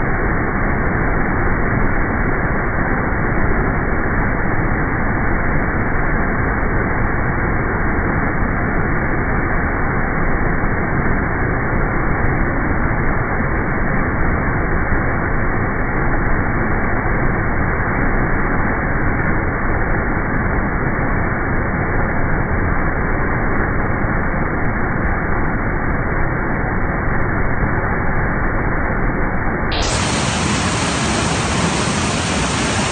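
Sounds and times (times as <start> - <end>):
waterfall rushing: 29.7 - 32.9.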